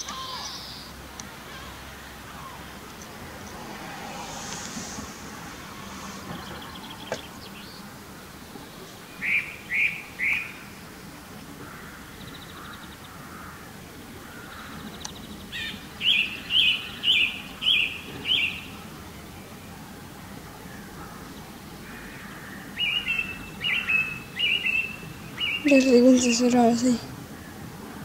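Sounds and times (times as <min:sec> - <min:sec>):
fainter bird calls and trills: 0:00.0 - 0:01.8, 0:08.8 - 0:10.7, 0:14.3 - 0:18.8, 0:20.8 - 0:27.0
songbird calling: 0:00.0 - 0:03.6, 0:04.4 - 0:19.8, 0:20.6 - 0:27.7.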